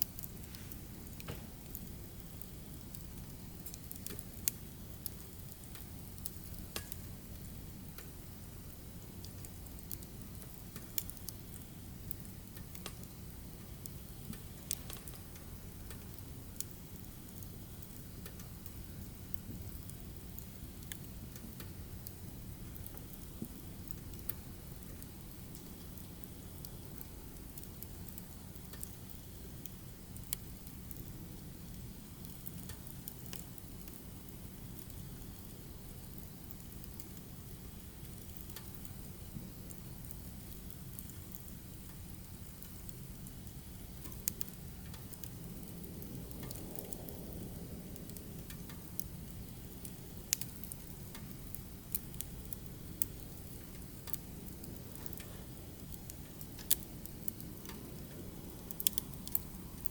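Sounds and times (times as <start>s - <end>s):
firewood crackling and popping: 0.0s - 59.9s
low rumble of fire: 0.0s - 59.9s
low steady rumble: 39.0s - 59.9s.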